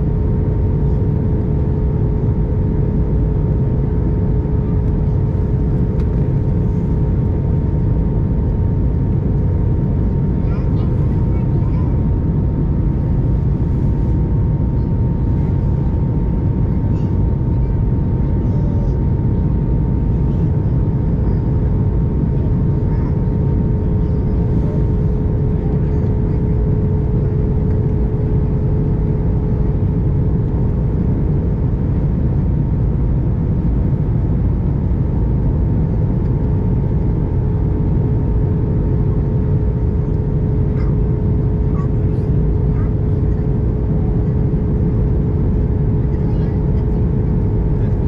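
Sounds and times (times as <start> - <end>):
jet engine cabin rumble: 0.0 - 48.0.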